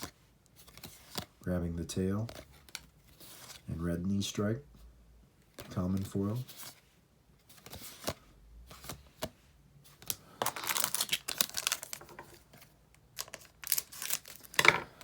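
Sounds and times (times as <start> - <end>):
wrapper crinkling and tearing: 10.0 - 12.4, 13.1 - 14.6.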